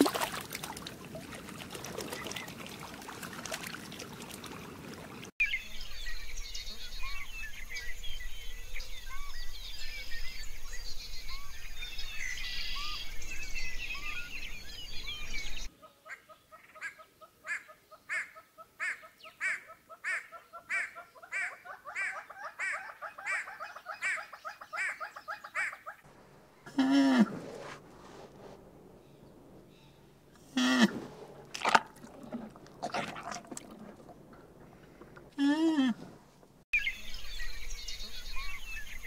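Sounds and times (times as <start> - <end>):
small birds chirping: 36.8 - 39.0.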